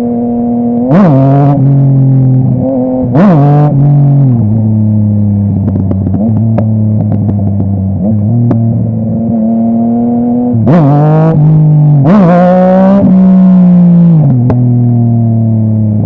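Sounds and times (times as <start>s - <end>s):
motorcycle engine: 0.0s - 16.0s
exhaust pops and crackles: 4.3s - 8.7s, 14.3s - 14.8s.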